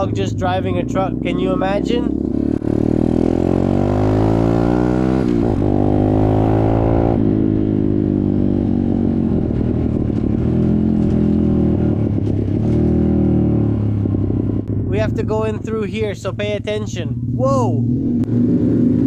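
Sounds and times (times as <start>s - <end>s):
dirt bike engine accelerating: 0.0s - 19.0s.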